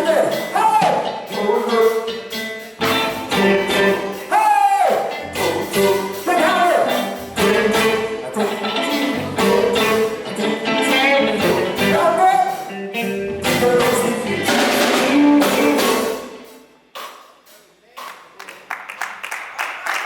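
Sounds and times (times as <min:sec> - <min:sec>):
person singing: 0:00.0 - 0:02.4, 0:03.4 - 0:16.4
gospel band with drum kit: 0:00.0 - 0:20.0.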